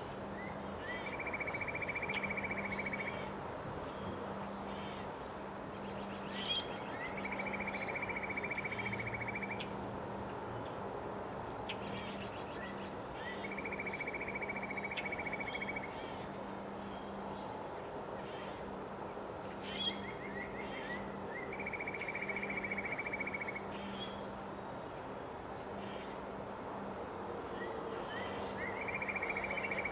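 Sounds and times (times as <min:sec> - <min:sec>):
songbird singing with buzzy trill: 0:00.4 - 0:03.3, 0:04.7 - 0:09.8, 0:11.6 - 0:16.2, 0:19.6 - 0:24.2, 0:27.6 - 0:29.9.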